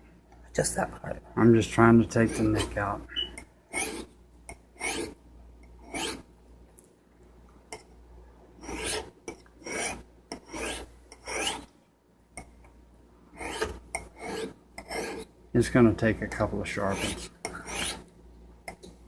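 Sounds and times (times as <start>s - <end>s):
knife rasping on sharpening stone: 2.2s - 4.1s, 4.8s - 5.2s, 5.8s - 6.2s, 8.6s - 11.7s, 13.4s - 15.3s, 16.9s - 18.1s.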